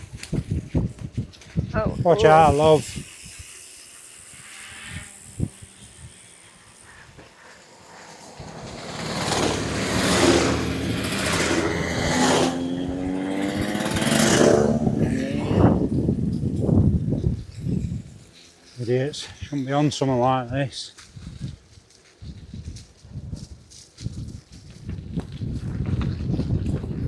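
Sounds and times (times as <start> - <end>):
motorbike revving past: 2.1 - 19.6.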